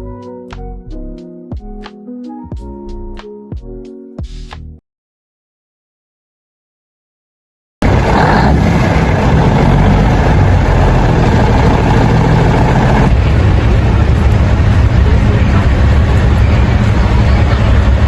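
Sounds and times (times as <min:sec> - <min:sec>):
large truck engine running: 0:07.8 - 0:18.0.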